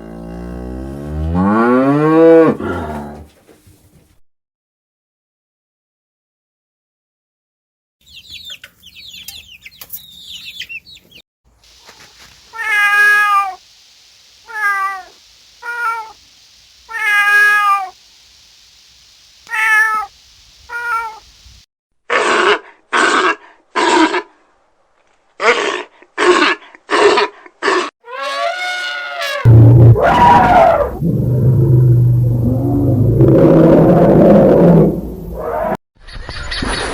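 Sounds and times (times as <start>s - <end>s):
faint high chirping: 11.8s - 21.6s
harsh animal calls: 11.9s - 21.4s, 25.4s - 35.8s
cat meowing: 12.5s - 13.6s, 14.4s - 16.2s, 16.9s - 18.0s, 19.4s - 20.1s, 20.7s - 21.2s.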